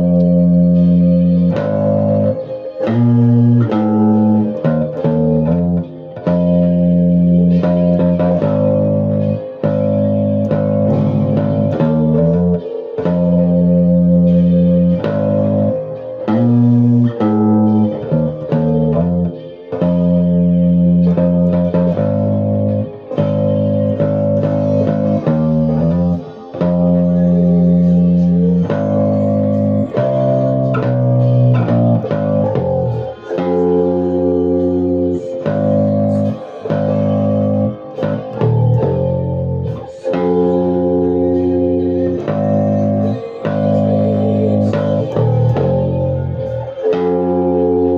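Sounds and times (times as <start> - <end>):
plucked guitar music: 0.0 - 47.9.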